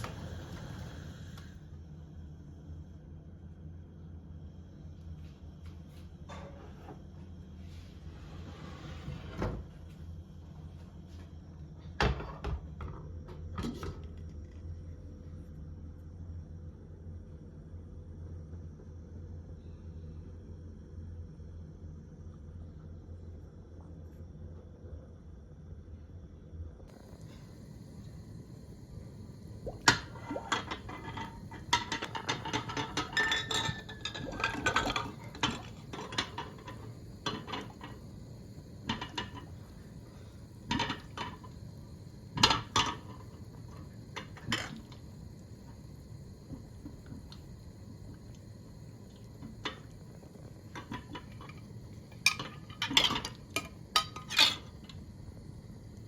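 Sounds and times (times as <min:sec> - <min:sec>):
liquid being handled: 0:27.0 - 0:55.4
dishes and utensils clinking: 0:29.8 - 0:38.2, 0:42.4 - 0:43.3, 0:49.3 - 0:54.9.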